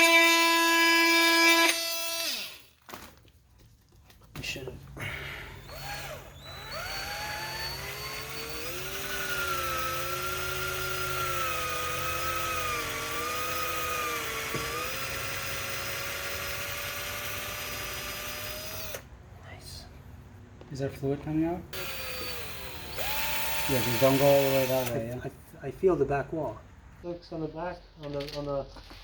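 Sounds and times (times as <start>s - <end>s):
power drill motor whine: 0.0s - 2.6s, 5.6s - 19.0s, 21.8s - 25.1s.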